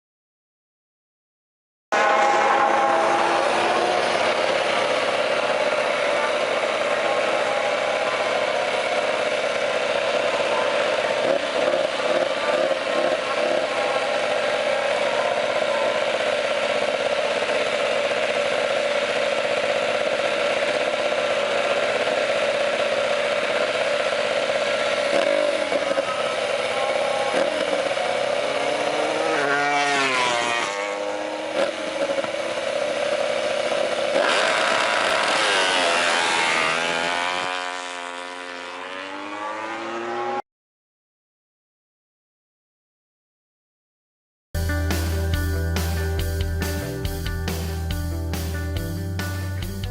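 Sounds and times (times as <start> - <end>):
racing motorcycle engine revving: 1.9 - 40.4.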